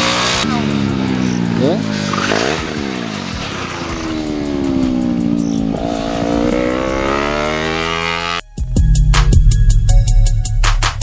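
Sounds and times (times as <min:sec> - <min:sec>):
motorcycle engines at high revs: 0:00.0 - 0:08.4.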